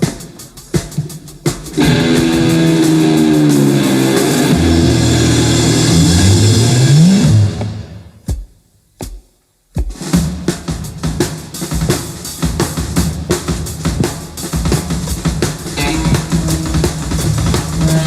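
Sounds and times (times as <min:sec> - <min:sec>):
rock drum kit playing: 0:00.0 - 0:18.0.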